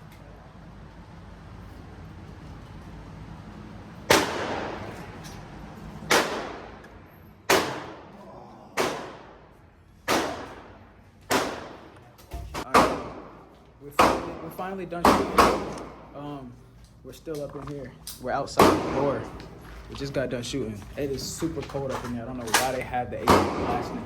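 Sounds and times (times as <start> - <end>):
rifle shots echoing indoors: 4.0 - 5.0, 6.1 - 8.2, 8.8 - 12.0.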